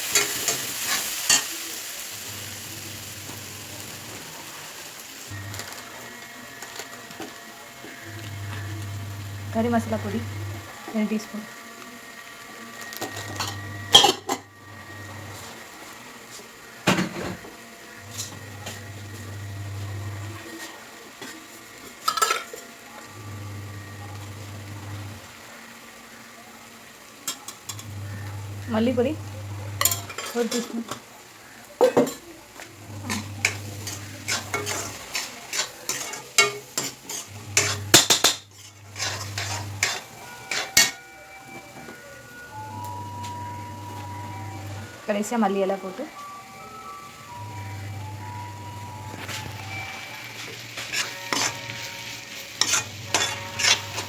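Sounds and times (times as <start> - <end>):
food sizzling in a pan: 0.0 - 54.0
spoon scraping a pan: 12.8 - 17.4, 18.1 - 22.6, 29.8 - 31.0, 33.0 - 41.0, 49.1 - 54.0
utensil clattering against a pan: 22.0 - 22.6, 33.1 - 41.0.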